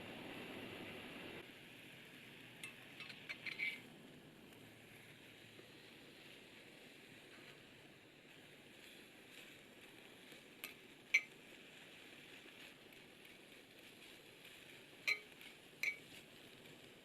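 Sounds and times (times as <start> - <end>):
metal utensils clinking on cookware: 2.6 - 3.8, 15.1 - 16.1.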